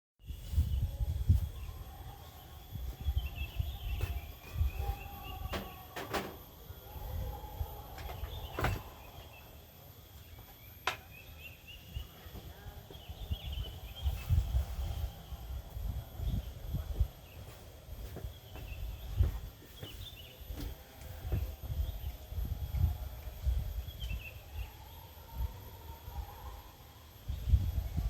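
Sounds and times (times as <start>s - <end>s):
wind buffeting microphone: 0.2s - 9.2s, 13.0s - 24.7s, 27.2s - 28.0s
insects droning: 0.4s - 28.0s.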